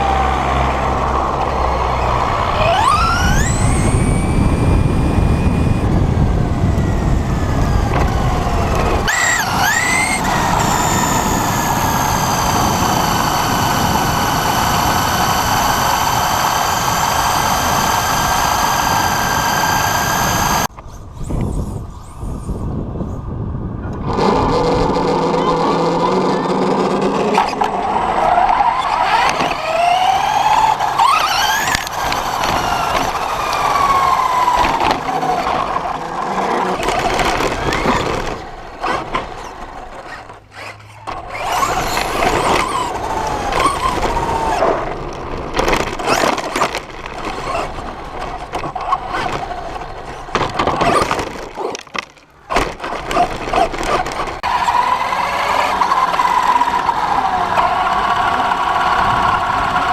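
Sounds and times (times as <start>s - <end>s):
electric toy truck motor whining: 0.0s - 20.7s, 24.1s - 59.9s
chassis rattling: 2.1s - 20.7s.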